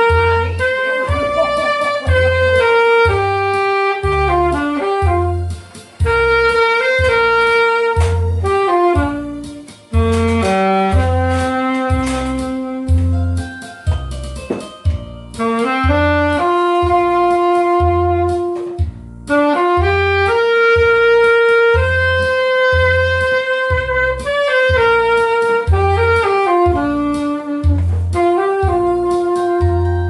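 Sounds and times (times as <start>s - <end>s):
backing track with low beat: 0.0s - 30.0s
saxophone slow melody: 0.0s - 30.0s.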